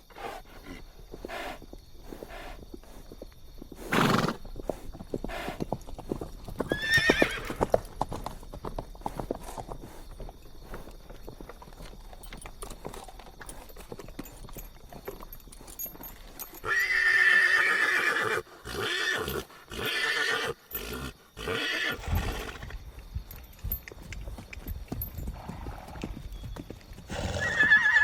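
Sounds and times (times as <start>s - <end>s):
horse hooves clip-clopping: 0.3s - 18.2s, 22.0s - 28.0s
horse whinnying: 3.8s - 5.6s, 6.6s - 7.8s, 16.6s - 22.7s, 27.1s - 28.0s.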